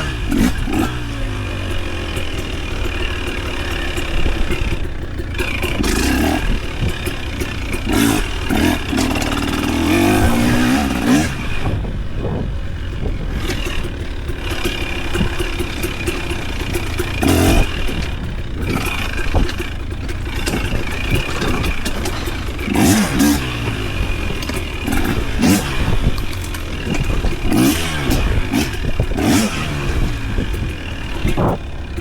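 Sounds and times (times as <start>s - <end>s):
clattering and scraping: 0.0s - 32.0s
off-road vehicle engine revving: 0.0s - 32.0s.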